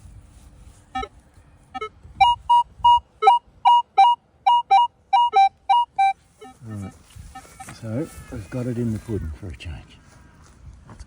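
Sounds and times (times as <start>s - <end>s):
metal detector beeps: 1.8s - 6.6s.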